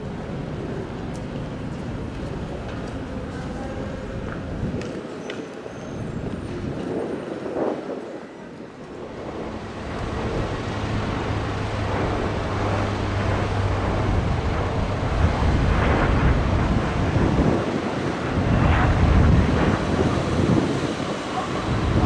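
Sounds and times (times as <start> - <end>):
electric train rumble: 6.2 - 22.0
low hum: 8.9 - 17.6.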